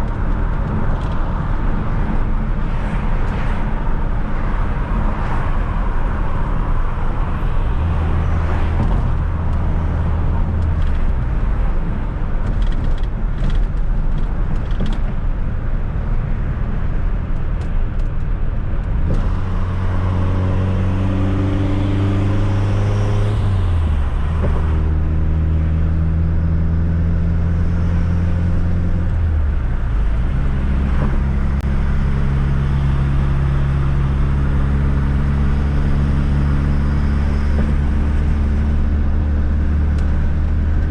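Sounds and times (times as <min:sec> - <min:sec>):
road noise: 0:00.0 - 0:40.9
car engine revving: 0:18.9 - 0:40.9.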